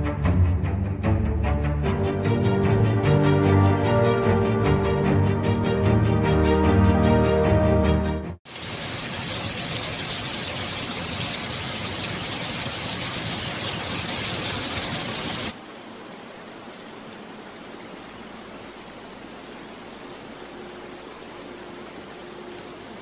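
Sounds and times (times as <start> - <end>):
rain hissing: 8.4 - 23.0.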